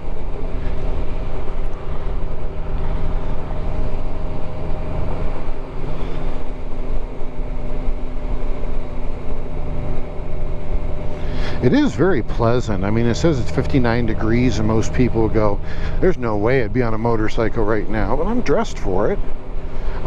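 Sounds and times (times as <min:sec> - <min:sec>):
motorcycle engine cruising: 0:00.0 - 0:20.0
wind and road noise: 0:00.0 - 0:20.0.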